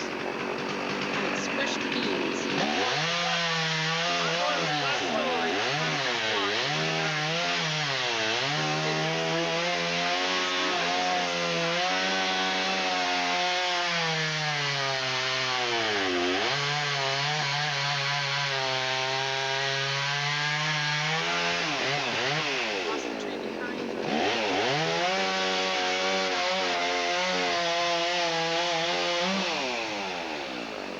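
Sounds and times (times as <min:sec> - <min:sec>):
chainsaw cutting wood: 0:00.0 - 0:30.9.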